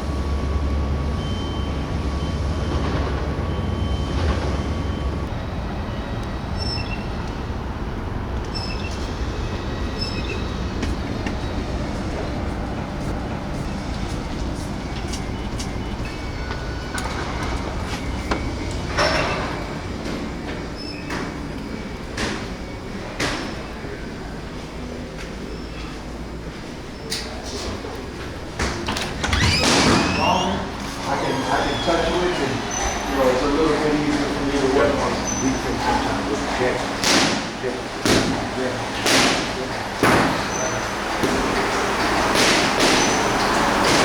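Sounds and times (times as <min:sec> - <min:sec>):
vehicle running hum: 0:00.0 - 0:23.4.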